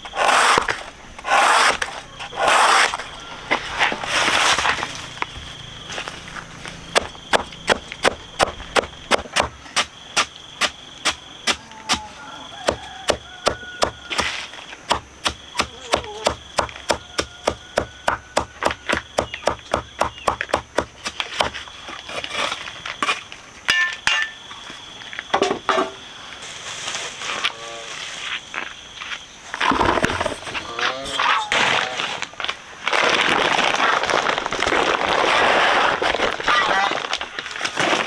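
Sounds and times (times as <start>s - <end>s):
rapid chopping: 6.9s - 12.0s, 12.6s - 21.6s.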